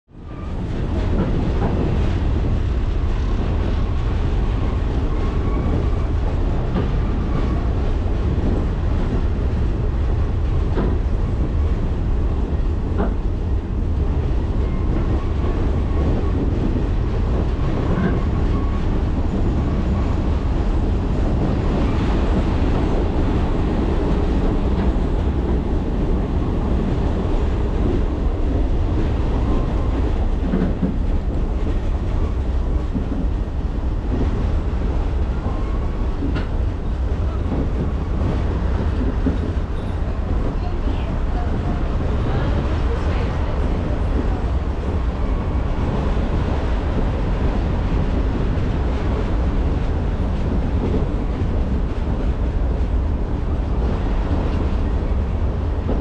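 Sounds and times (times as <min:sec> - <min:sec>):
train wheels rumbling on rails: 0:00.1 - 0:56.0.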